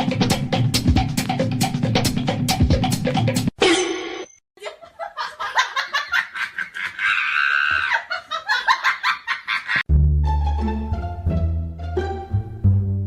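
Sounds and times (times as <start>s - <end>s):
person laughing hard: 4.6s - 9.8s.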